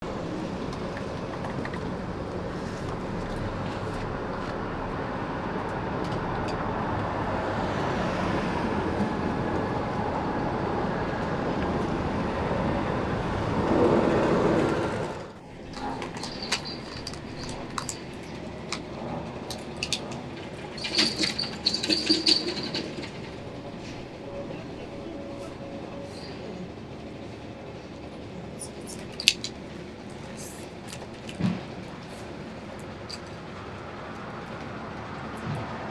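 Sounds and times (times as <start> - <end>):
subway train rumble: 0.0 - 35.9
metal clanks: 15.6 - 24.1
high-pitched wheel squeals: 15.8 - 18.2, 19.5 - 26.7.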